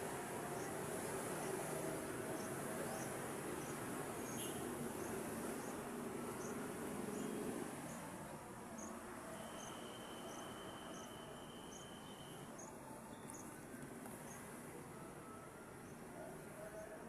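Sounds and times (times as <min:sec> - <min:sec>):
thin steady high tone: 0:09.4 - 0:13.4.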